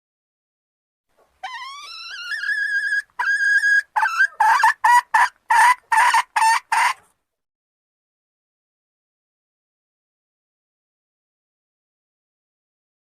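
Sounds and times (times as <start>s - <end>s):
junglefowl hen calling: 1.4s - 7.1s.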